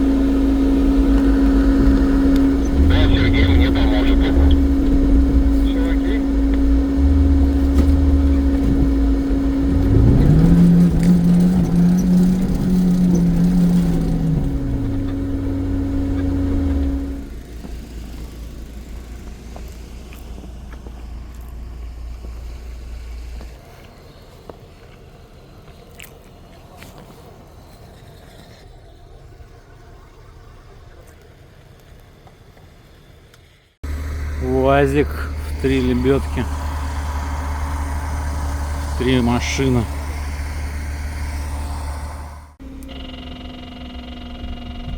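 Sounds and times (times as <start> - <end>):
steady whine: 0.0 - 19.8, 33.8 - 44.9
off-road vehicle engine revving: 0.0 - 23.8, 33.8 - 44.9.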